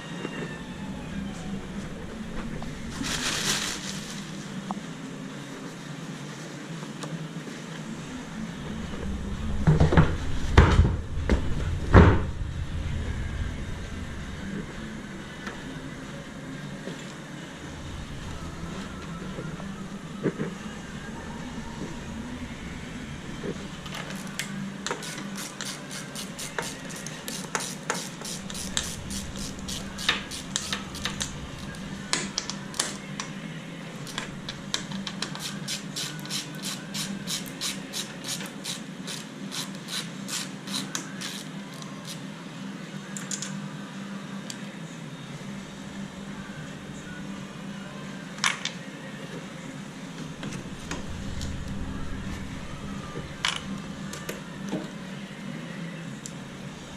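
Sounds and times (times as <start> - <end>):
steady low hum: 0.0 - 38.0, 41.1 - 56.9
faint music: 0.0 - 56.9.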